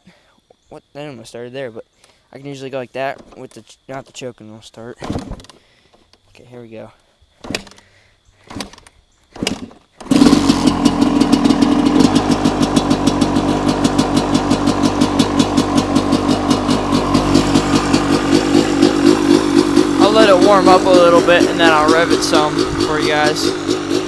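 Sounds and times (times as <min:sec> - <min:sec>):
dirt bike engine idling: 0:06.9 - 0:24.0
kickstarter bursts: 0:07.4 - 0:24.0.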